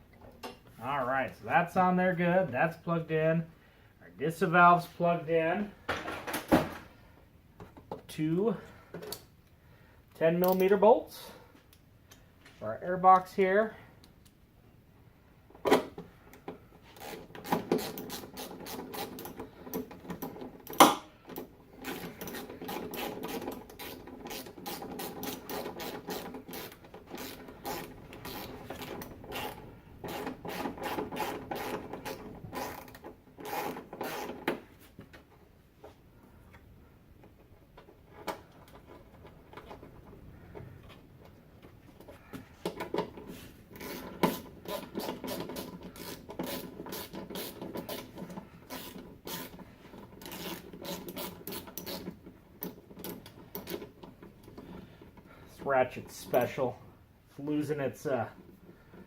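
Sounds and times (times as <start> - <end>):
socket ratchet clicking: 50.2 - 53.9.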